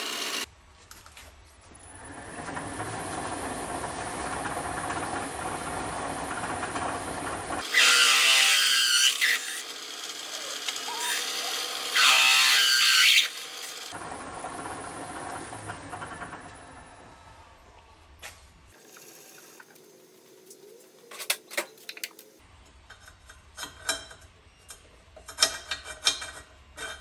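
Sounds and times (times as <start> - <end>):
drill bit grinding into metal: 0.0 - 0.5
electric drill running: 0.0 - 0.5.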